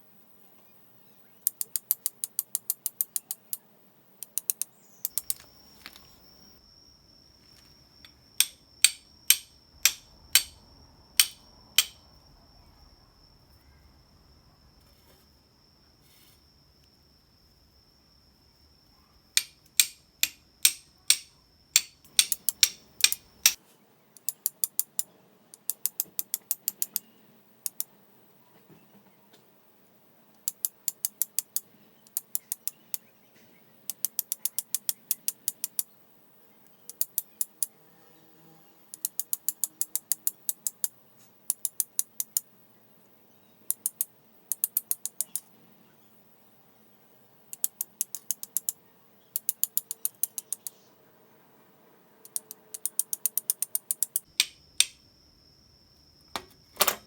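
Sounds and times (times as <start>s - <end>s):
fire steel striking flint: 7.6s - 10.6s, 11.2s - 12.0s, 19.4s - 23.6s, 54.3s - 55.0s.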